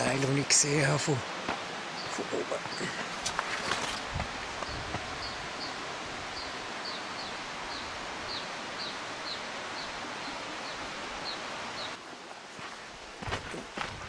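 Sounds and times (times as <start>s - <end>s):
rushing background noise: 0.0s - 14.0s
small bird chirping: 4.6s - 5.8s, 6.4s - 12.0s.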